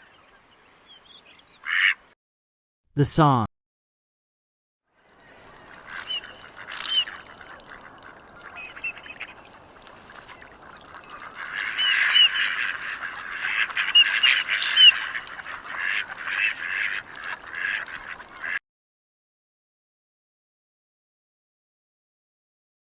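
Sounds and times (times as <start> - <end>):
ducks quacking: 1.6 - 2.0, 5.6 - 18.6.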